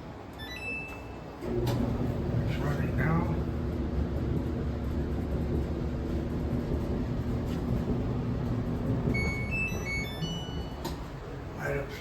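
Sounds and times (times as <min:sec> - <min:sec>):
clothes dryer humming: 0:00.0 - 0:12.0
short electronic beeps: 0:09.2 - 0:10.8.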